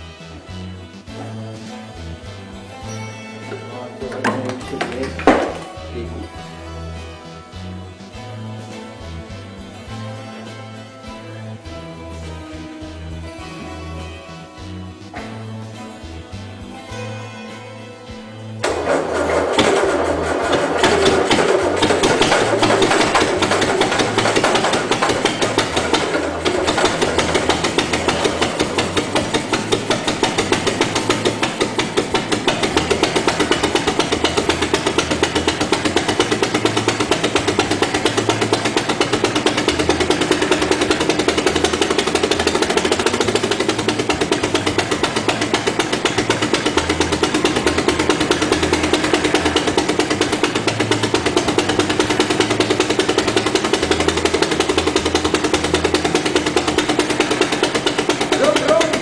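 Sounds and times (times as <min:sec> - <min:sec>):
car engine idling roughly: 0:18.6 - 0:59.0.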